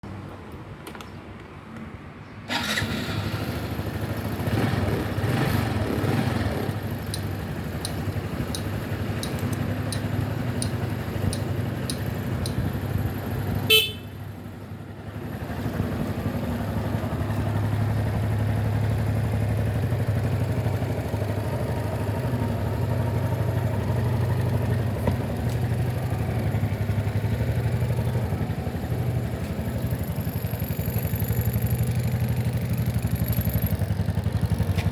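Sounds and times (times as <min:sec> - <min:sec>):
motorcycle engine starting and idling: 0:02.5 - 0:34.9.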